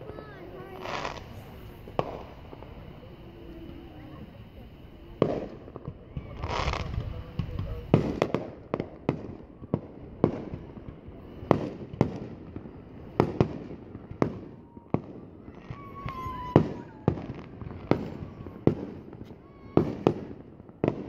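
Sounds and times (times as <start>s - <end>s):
firework shells bursting: 0.0s - 12.4s.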